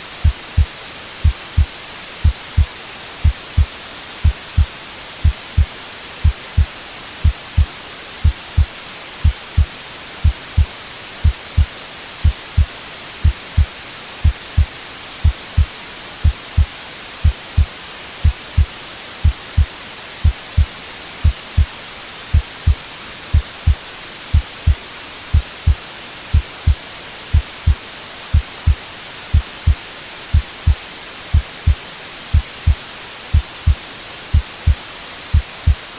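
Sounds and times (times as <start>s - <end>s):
white noise hiss: 0.0s - 35.9s
heartbeat thumps: 0.2s - 21.7s, 22.3s - 35.9s.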